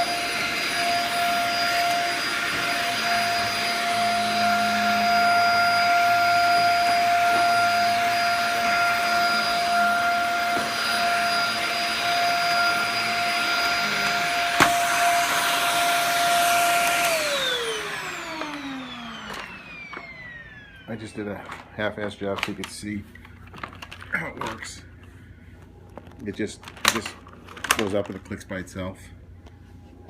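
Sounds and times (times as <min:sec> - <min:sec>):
vacuum motor spinning down: 0:00.0 - 0:21.6
vacuum cleaner running: 0:00.0 - 0:24.8.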